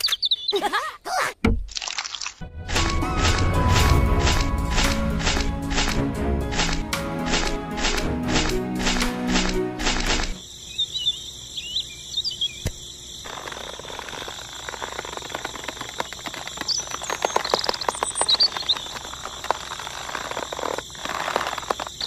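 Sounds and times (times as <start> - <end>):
birds chirping: 0.0 - 1.2, 7.4 - 22.0
wire twisting around sticks: 13.3 - 22.0.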